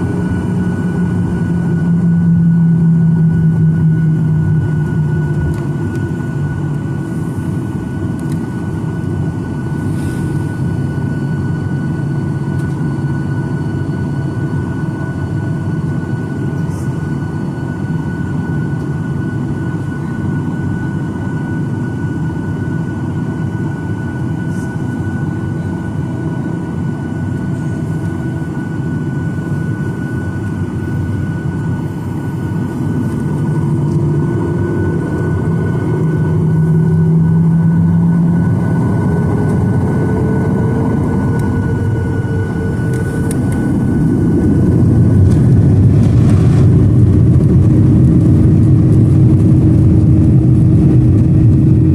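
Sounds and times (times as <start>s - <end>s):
jet engine drone with whine: 0.0s - 51.9s.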